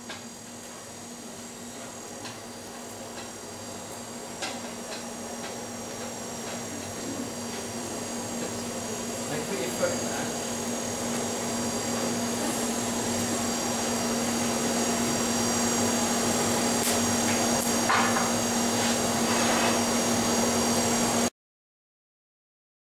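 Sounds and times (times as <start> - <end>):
forge blower running: 0.0 - 21.3.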